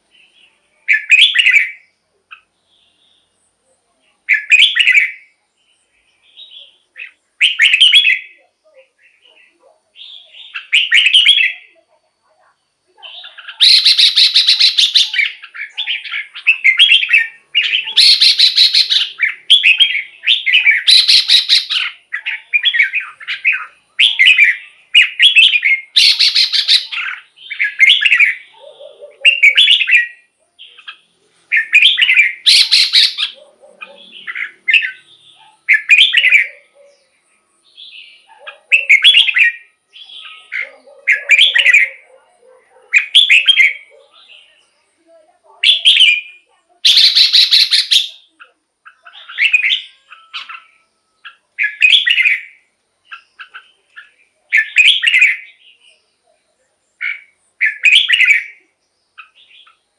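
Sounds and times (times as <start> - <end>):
bird singing whistled phrases: 0.9 - 1.8, 4.3 - 5.3, 6.3 - 8.4, 10.0 - 11.7, 13.1 - 28.4, 31.5 - 33.4, 38.7 - 42.0, 45.6 - 55.6, 57.0 - 58.6.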